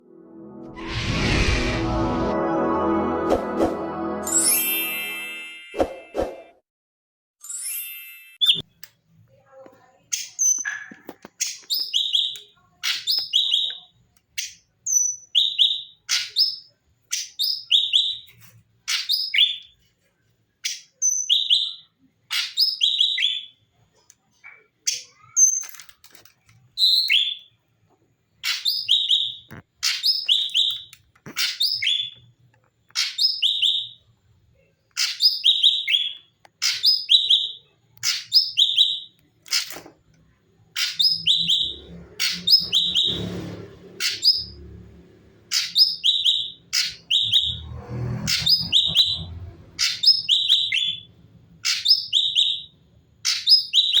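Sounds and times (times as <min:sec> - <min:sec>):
bird singing high chirps: 0:11.4 - 0:18.3, 0:28.5 - 0:32.2, 0:33.0 - 0:34.0, 0:35.0 - 0:39.2, 0:40.8 - 0:43.3, 0:45.5 - 0:47.6, 0:48.3 - 0:51.1, 0:51.7 - 0:54.0.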